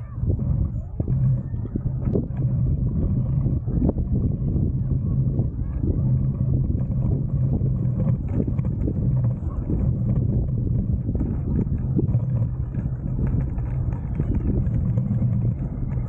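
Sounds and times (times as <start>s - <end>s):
bicycle rolling rumble: 0.0s - 16.0s
wind on microphone: 0.0s - 16.0s
small rattles and knocks: 5.2s - 16.0s.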